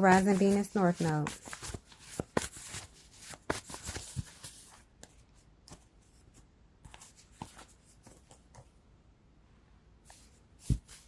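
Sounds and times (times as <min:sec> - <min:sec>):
card clicks and rustles: 0:00.1 - 0:08.7.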